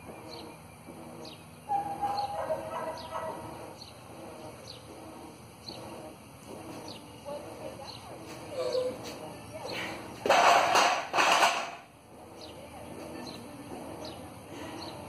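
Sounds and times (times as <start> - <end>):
bird chirping: 0.0 - 5.0
low talking: 1.7 - 10.2, 12.0 - 15.0.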